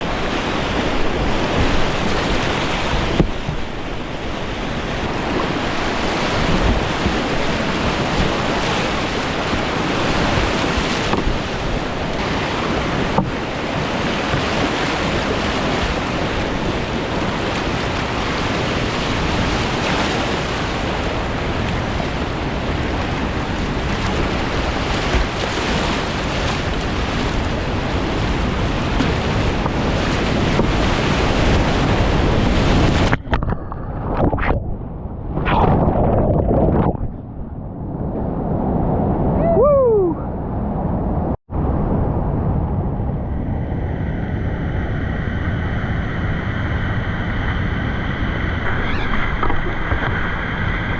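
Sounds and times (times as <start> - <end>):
whitewater rapids roaring: 0.0 - 33.2
wind buffeting microphone: 0.0 - 50.9.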